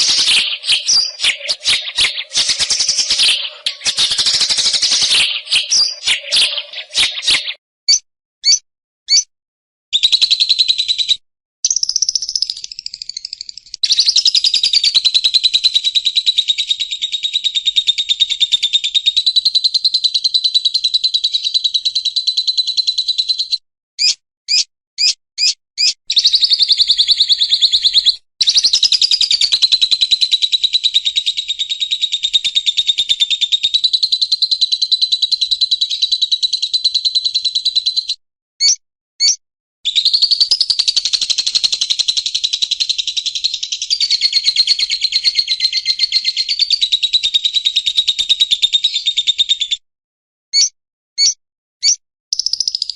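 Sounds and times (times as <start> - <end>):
sharp bird notes: 0.0 - 7.6
bird singing fast rattling trills: 0.0 - 9.3, 10.0 - 49.6, 50.6 - 52.9.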